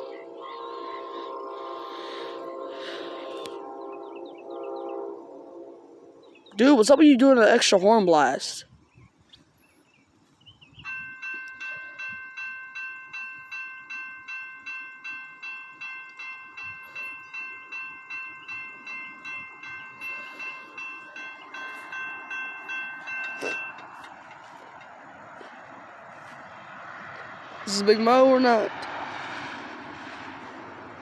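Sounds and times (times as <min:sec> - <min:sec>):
railroad crossing bell ringing: 0:00.0 - 0:05.1, 0:10.8 - 0:31.0
train passing: 0:00.0 - 0:08.6, 0:09.5 - 0:31.0.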